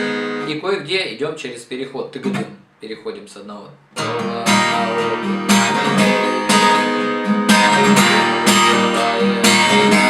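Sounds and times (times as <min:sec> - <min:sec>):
acoustic guitar strumming: 0:00.0 - 0:00.9, 0:03.9 - 0:10.0.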